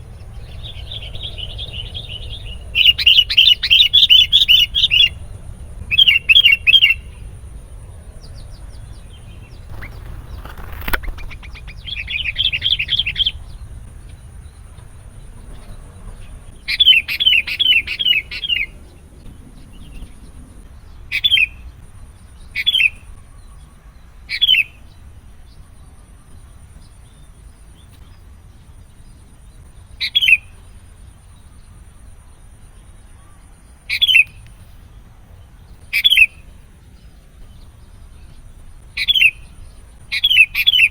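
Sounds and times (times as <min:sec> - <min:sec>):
bird chattering calls: 0:08.5 - 0:13.8.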